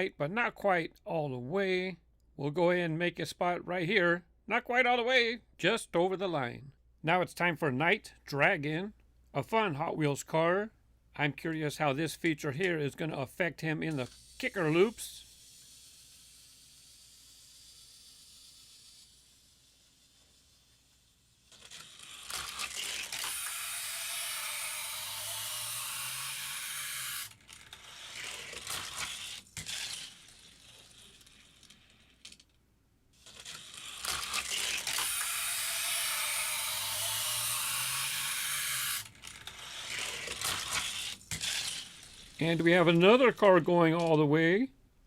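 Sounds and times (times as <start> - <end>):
toy car rolling on plastic track: 13.6 - 32.6, 33.2 - 43.4.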